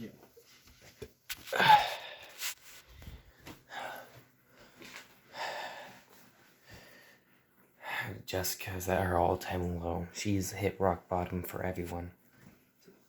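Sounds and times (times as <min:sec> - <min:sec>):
person breathing out: 0:01.5 - 0:04.2, 0:05.3 - 0:06.1.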